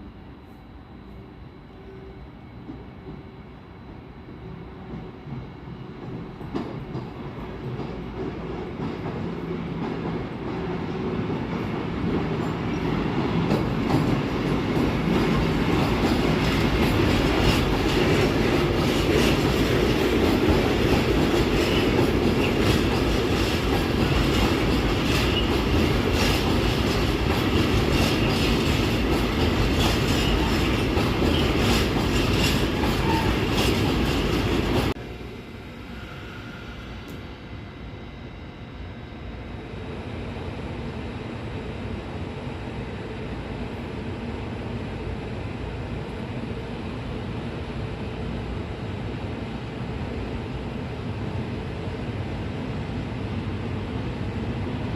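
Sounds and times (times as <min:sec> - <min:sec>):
train passing with loud rumble: 0:00.0 - 0:54.9.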